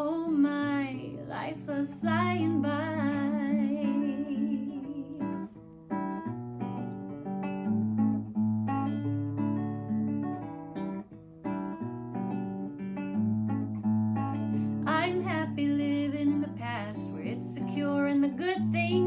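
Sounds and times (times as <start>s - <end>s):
person singing: 0.0s - 5.5s
acoustic guitar strumming and picking: 0.0s - 19.0s.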